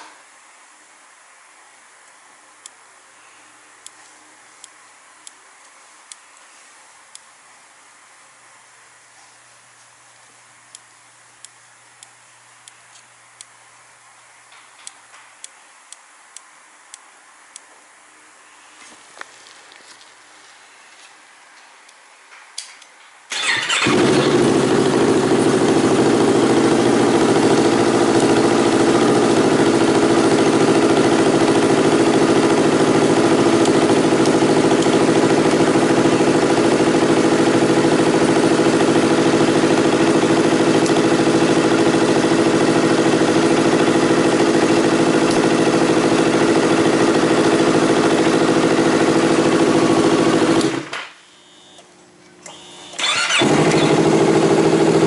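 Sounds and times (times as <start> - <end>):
motorcycle engine idling: 23.3 - 50.8, 53.0 - 55.0.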